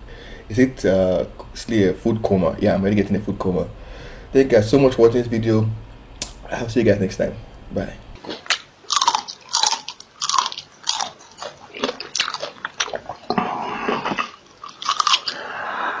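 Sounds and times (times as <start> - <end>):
hissing: 5.8 - 8.2
crunchy bites and chewing: 8.2 - 16.0.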